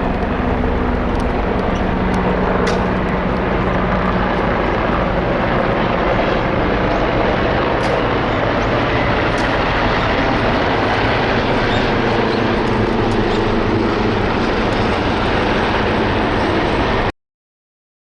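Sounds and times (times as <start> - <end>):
loud engine drone: 0.0 - 17.1.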